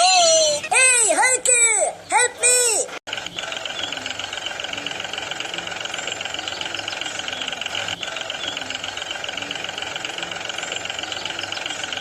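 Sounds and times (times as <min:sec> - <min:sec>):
engine idling with rapid knocking: 0:03.1 - 0:12.0.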